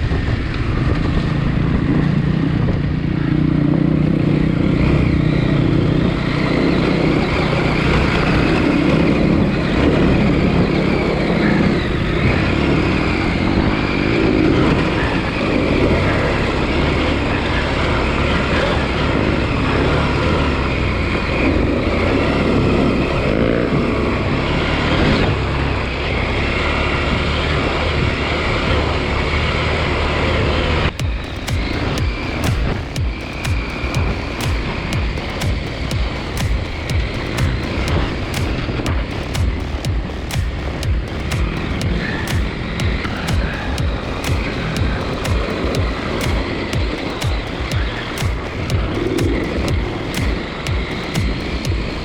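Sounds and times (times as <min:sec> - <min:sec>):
wind noise: 0:00.0 - 0:16.1
motorcycle engine running: 0:00.0 - 0:52.0
tyre noise: 0:31.0 - 0:52.0.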